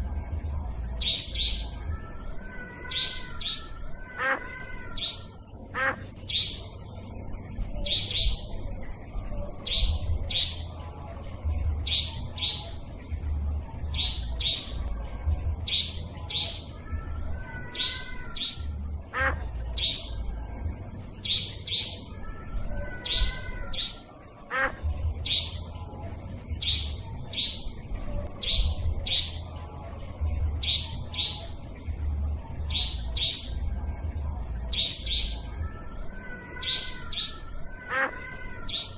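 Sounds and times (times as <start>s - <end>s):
low steady hum: 0.0s - 38.9s
recorded nightjar calls: 1.0s - 8.8s, 9.4s - 11.0s, 11.8s - 13.0s, 13.9s - 15.0s, 15.6s - 20.4s, 21.0s - 25.9s, 26.6s - 29.7s, 30.6s - 31.8s, 32.6s - 33.7s, 34.7s - 38.9s.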